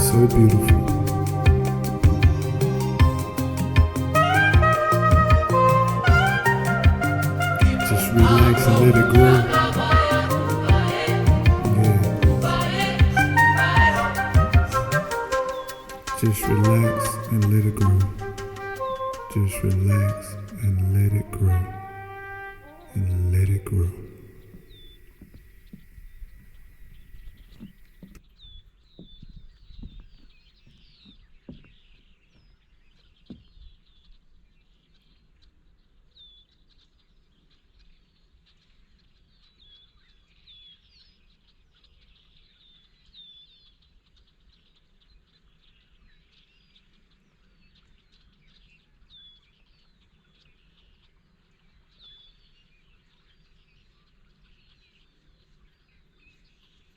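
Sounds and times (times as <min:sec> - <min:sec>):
birds chirping: 0:00.0 - 0:35.2.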